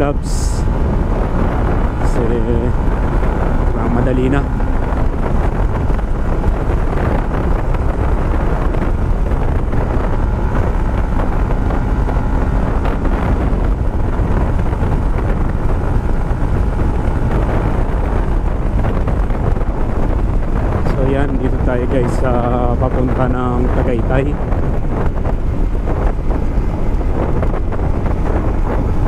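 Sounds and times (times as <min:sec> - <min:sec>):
motorcycle engine running: 0:00.0 - 0:29.0
wind buffeting microphone: 0:00.0 - 0:29.0.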